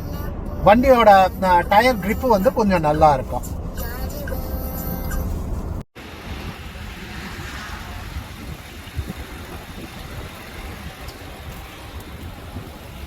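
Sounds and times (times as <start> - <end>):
car interior road rumble: 0.0 - 13.0
engine noise: 0.0 - 13.0.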